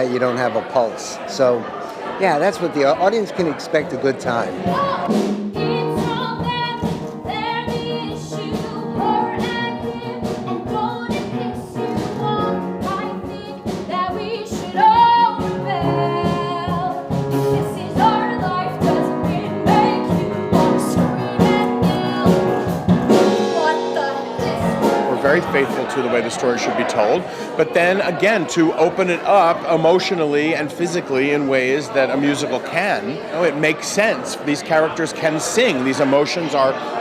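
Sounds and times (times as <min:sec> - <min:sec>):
instrumental accompaniment with beat: 0:04.3 - 0:28.2
several voices singing: 0:04.5 - 0:30.0.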